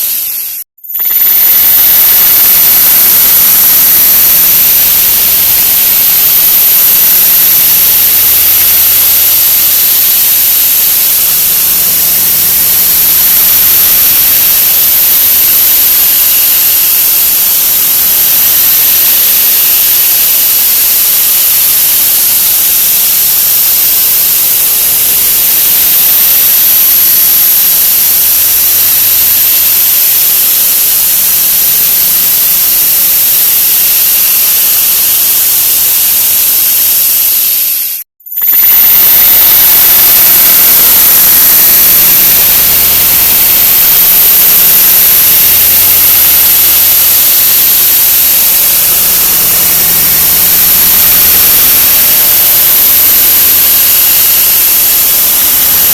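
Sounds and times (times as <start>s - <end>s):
thin high whine: 0.0s - 55.9s
steady rushing noise: 35.3s - 53.1s.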